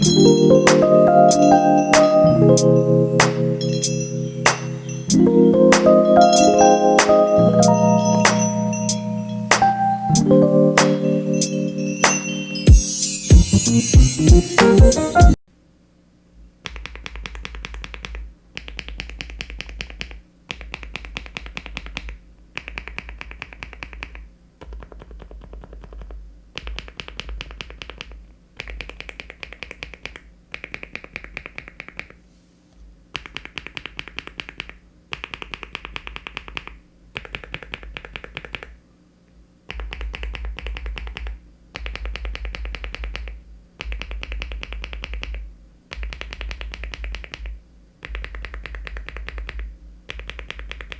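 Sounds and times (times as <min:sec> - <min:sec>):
fast typing on mechanical keyboard: 0:16.8 - 0:32.2, 0:33.2 - 0:38.7, 0:39.7 - 0:50.9.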